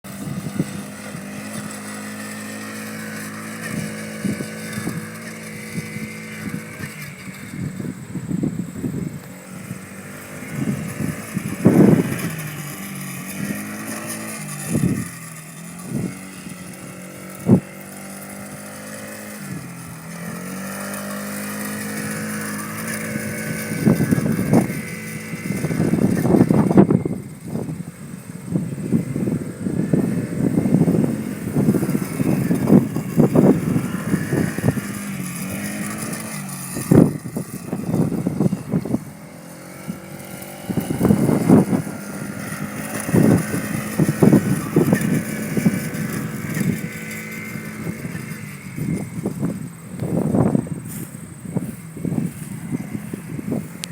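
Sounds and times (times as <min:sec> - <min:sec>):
small engine running: 0:00.0 - 0:53.9.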